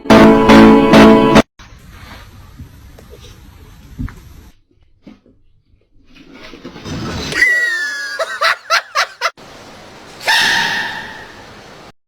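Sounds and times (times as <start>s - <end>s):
person laughing: 7.7s - 9.3s
loud high held cry: 10.2s - 11.4s.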